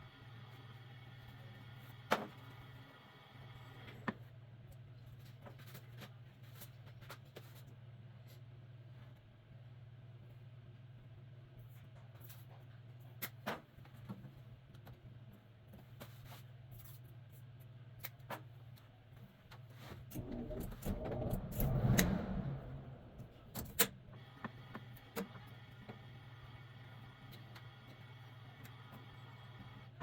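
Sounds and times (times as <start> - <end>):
furnace humming: 20.0 - 30.0.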